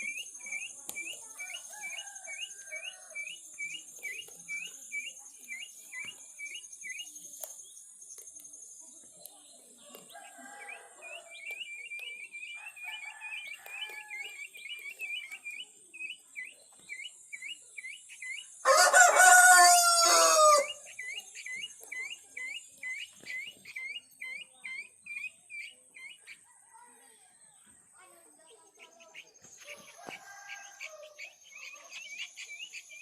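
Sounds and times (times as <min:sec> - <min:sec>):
rooster crowing: 0:18.6 - 0:20.8.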